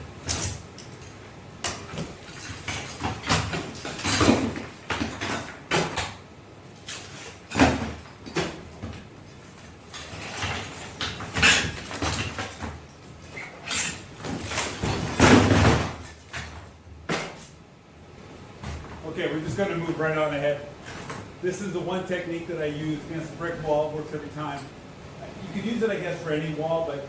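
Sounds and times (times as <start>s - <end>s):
falling plaster: 6.8s - 17.5s.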